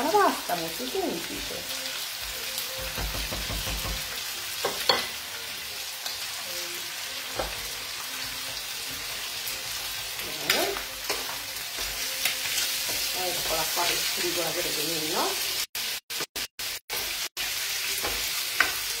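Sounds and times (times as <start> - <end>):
food sizzling in a wok: 0.0 - 19.0
wooden spoon knocking pan: 2.8 - 5.1.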